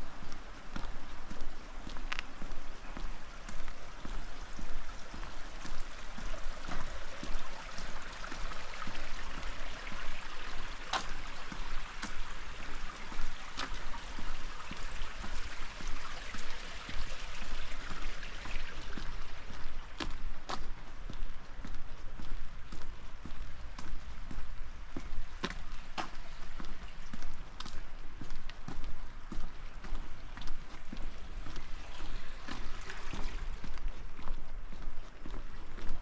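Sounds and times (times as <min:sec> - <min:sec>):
rain and running water: 0:00.0 - 0:36.0.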